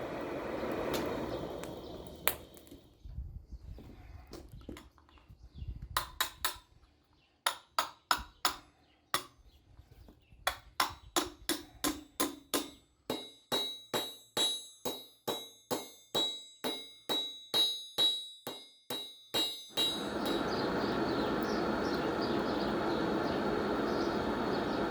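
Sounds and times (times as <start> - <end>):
hammer blows on anvil: 10.5 - 21.4.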